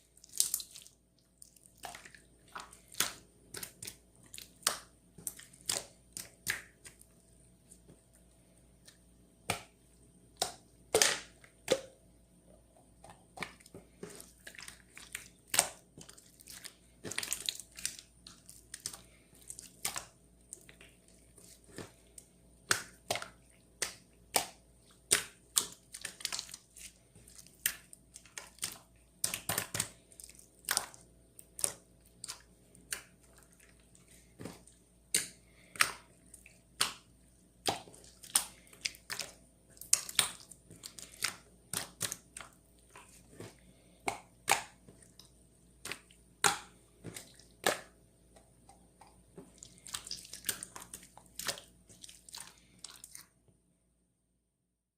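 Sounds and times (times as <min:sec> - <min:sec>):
faint steady hum: 0:00.0 - 0:54.4.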